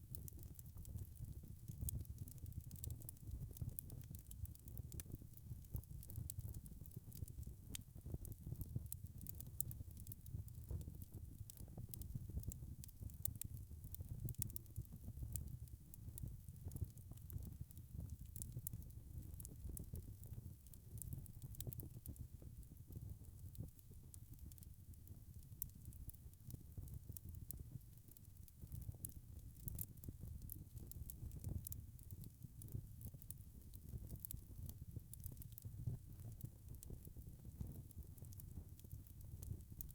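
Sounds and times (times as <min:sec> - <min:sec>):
logs crackling and popping: 0:00.2 - 0:08.5, 0:16.8 - 0:17.6, 0:18.2 - 0:20.3, 0:28.2 - 0:39.9.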